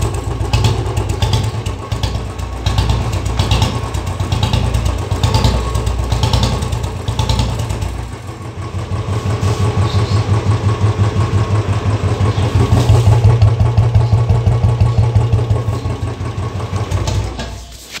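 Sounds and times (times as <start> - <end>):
motorcycle engine idling thump: 12.5 - 17.6.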